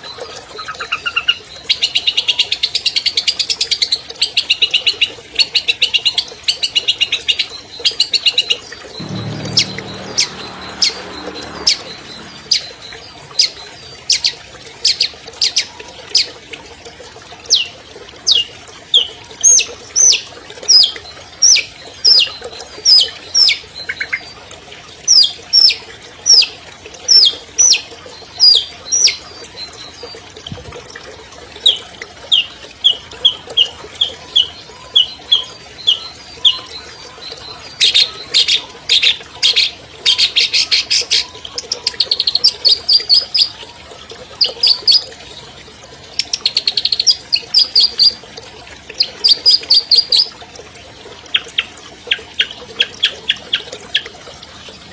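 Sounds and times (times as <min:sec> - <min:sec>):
bird singing sharp high notes: 0:09.0 - 0:13.6.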